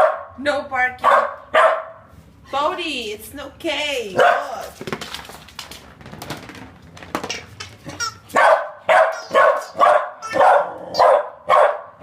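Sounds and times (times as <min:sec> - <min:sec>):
puppy barking: 0:00.0 - 0:00.4, 0:01.0 - 0:02.0, 0:04.2 - 0:04.6, 0:08.0 - 0:12.0.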